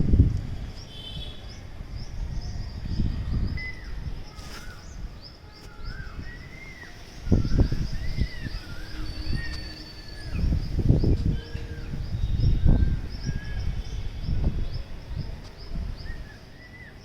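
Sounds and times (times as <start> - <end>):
high bird chirp: 2.2 - 15.3
arched whistled bird notes: 2.4 - 15.3.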